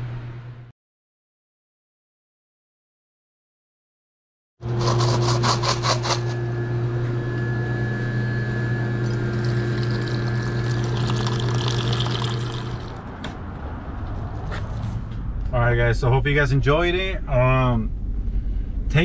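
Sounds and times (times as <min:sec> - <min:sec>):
machine hum: 0:04.6 - 0:13.2.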